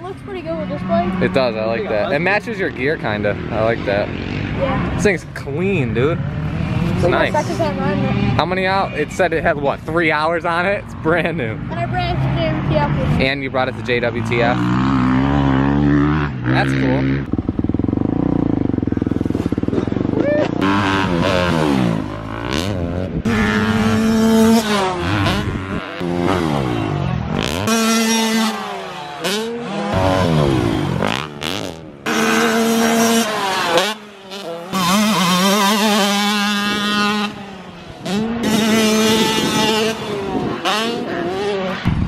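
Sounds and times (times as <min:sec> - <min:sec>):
dirt bike engines revving: 0:00.0 - 0:42.0.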